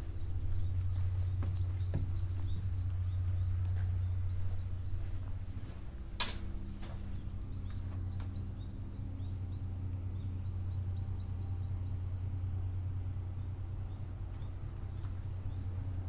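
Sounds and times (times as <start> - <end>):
steady low hum: 0.0 - 16.0
sharp click: 6.2 - 6.5.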